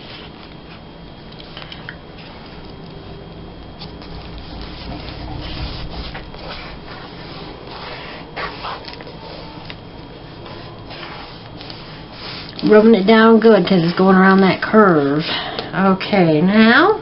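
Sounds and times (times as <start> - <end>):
paper crinkling: 3.7 - 12.7
paper rustling and scraping: 3.8 - 15.2.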